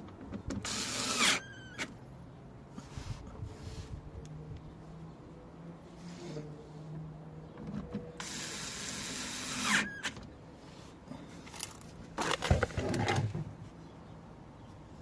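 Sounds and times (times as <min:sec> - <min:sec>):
power tool whirring: 0:08.2 - 0:10.1.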